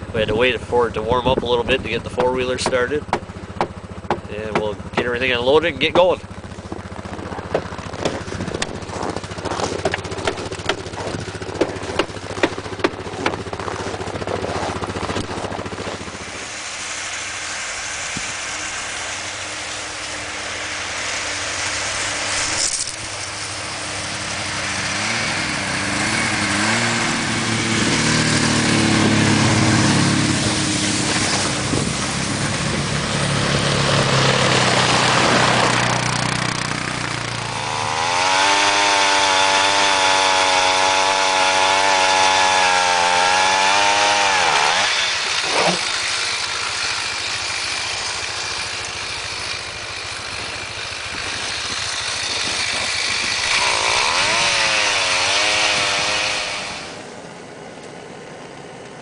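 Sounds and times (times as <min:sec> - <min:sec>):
small gasoline engine running: 0:00.0 - 0:59.0
sharp knocks: 0:02.2 - 0:05.2, 0:06.7 - 0:13.6.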